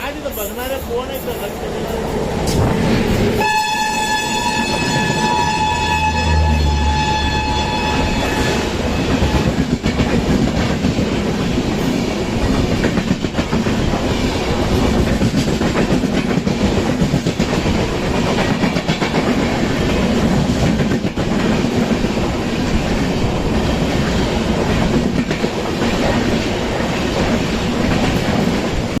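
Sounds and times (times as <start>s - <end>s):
train wheels clacking on rails: 0.0s - 29.0s
train horn: 3.4s - 9.6s.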